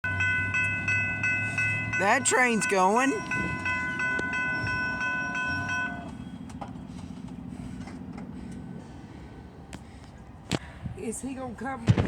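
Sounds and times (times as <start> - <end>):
pulsing high ringing tones: 0.0 - 6.8
train rumbling past: 0.0 - 11.8.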